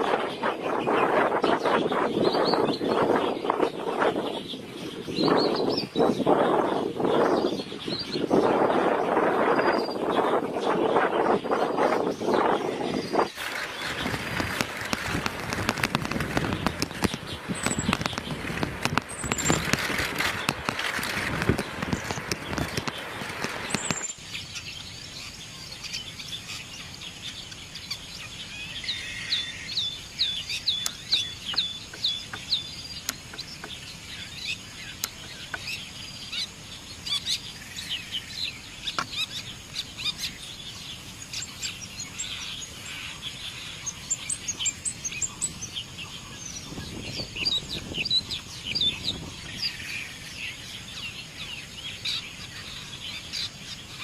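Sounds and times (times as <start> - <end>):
shrike singing: 0.1 - 25.4
background hiss: 6.1 - 54.0.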